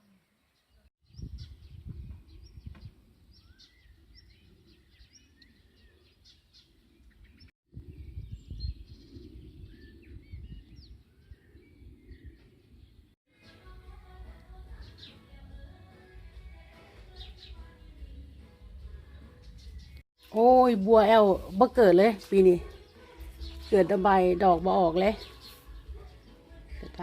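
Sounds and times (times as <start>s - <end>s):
wild birds chirping: 0.0s - 13.2s, 17.1s - 27.0s
low rumble on microphone: 1.1s - 4.6s, 7.1s - 13.1s.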